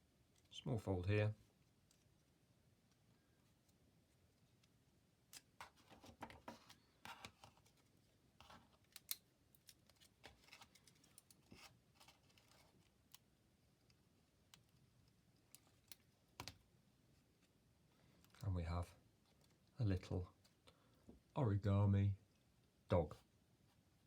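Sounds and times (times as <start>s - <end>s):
paper being folded and creased: 9.8s - 12.9s.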